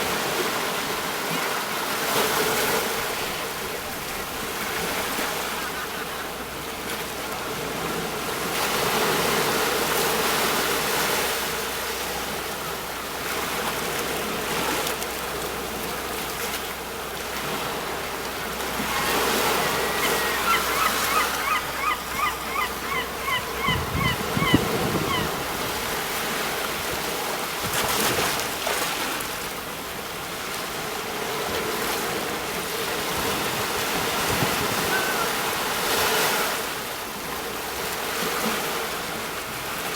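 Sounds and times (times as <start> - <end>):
sea waves breaking on shore: 0.0 - 39.9
short high chirping calls: 18.9 - 25.2.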